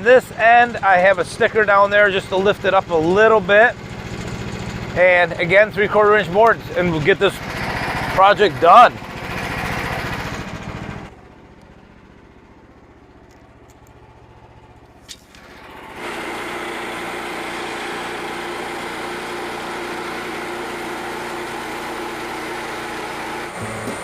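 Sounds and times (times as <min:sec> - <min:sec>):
sawmill engine running: 0:00.0 - 0:24.0.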